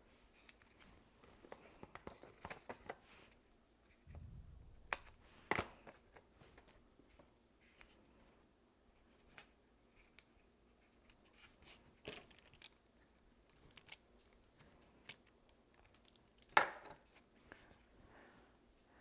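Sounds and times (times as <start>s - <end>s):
paper handling ticks and taps: 0.4s - 3.0s
low dull thump: 4.1s - 5.8s.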